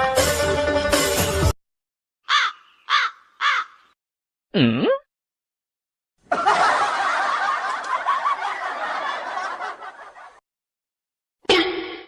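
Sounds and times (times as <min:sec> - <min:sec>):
people laughing: 0:06.2 - 0:10.4.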